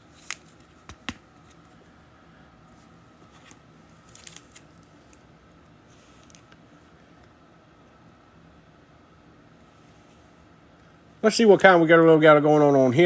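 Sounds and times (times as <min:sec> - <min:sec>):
faint room hum: 0:00.0 - 0:13.0
cards clicking and scraping: 0:00.1 - 0:01.7, 0:03.2 - 0:05.2.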